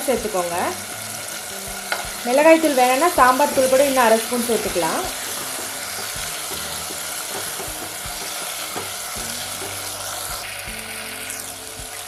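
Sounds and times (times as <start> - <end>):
vegetables sizzling in oil: 0.0 - 12.0
spatula knocking and scraping pan: 1.9 - 10.4.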